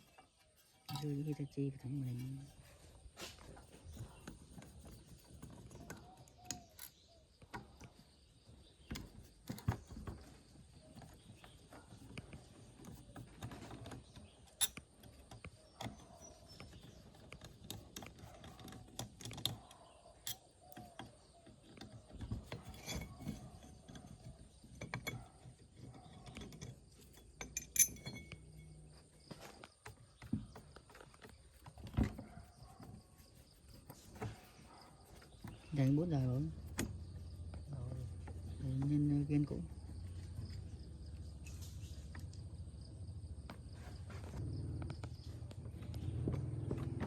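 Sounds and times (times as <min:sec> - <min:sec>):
metal tools clinking and knocking: 0:00.0 - 0:02.6, 0:12.8 - 0:31.1.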